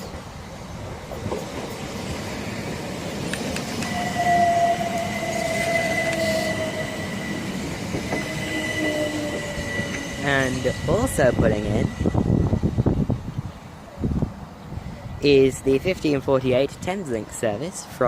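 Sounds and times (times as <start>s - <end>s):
electric train pulling in: 0.0s - 14.0s
high squeal: 3.8s - 12.9s.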